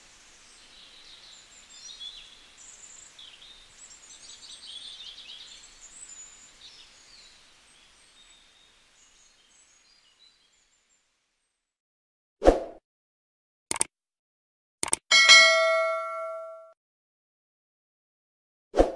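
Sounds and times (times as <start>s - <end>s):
small birds chirping: 0.0s - 11.6s
faint outdoor hiss: 0.0s - 11.7s.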